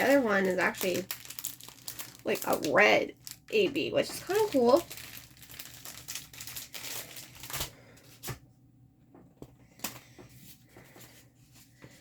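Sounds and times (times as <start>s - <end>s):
plastic packaging crinkling: 0.0s - 8.3s.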